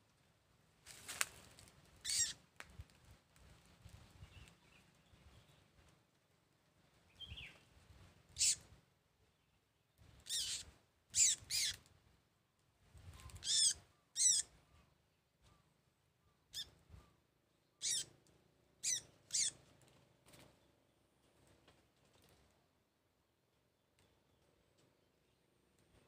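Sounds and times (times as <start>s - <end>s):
bird squawking harshly: 2.0s - 2.4s, 8.4s - 8.6s, 10.3s - 11.8s, 13.4s - 14.5s, 17.8s - 18.1s, 18.8s - 19.6s.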